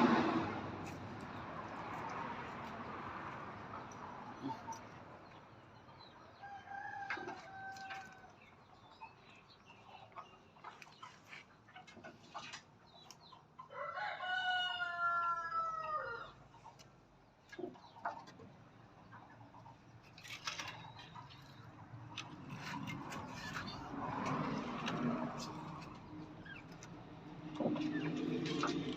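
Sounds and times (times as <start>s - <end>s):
rooster crowing: 13.7s - 16.4s.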